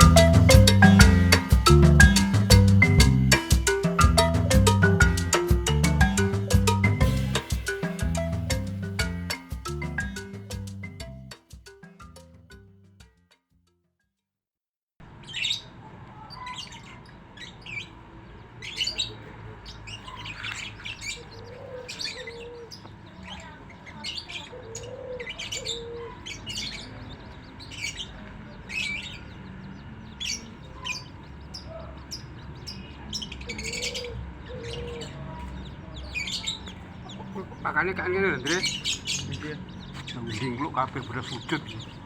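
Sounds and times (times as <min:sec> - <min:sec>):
lower bird calls: 0:00.0 - 0:11.1, 0:18.6 - 0:42.0
birds chirping: 0:00.0 - 0:12.3, 0:15.1 - 0:42.0.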